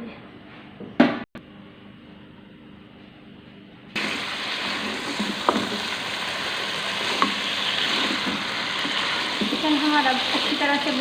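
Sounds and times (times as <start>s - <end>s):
food sizzling in hot oil: 4.0s - 11.0s.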